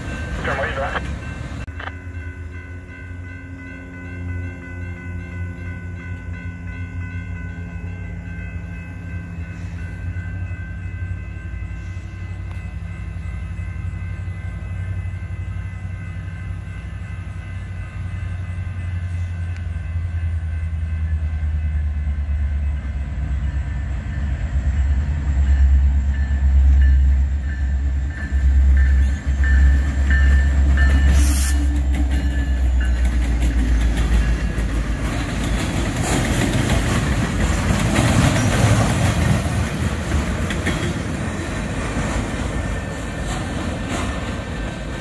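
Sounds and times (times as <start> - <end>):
locomotive rumble: 0.0 - 45.0.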